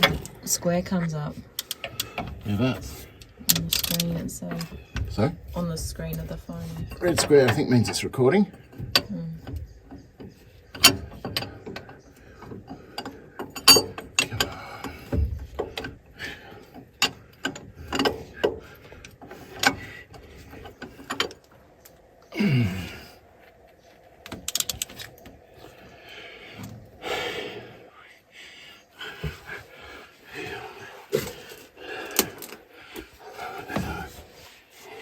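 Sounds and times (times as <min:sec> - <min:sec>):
tools clicking and knocking on metal: 0:00.0 - 0:22.0, 0:24.2 - 0:25.7.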